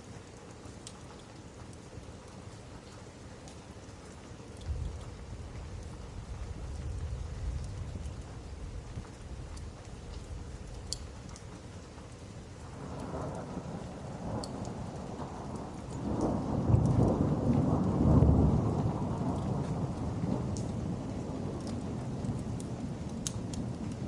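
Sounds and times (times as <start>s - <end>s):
steady rain: 0.0s - 24.0s
wood fire crackling: 0.0s - 24.0s
thunder rolling: 4.7s - 9.7s, 12.7s - 23.0s.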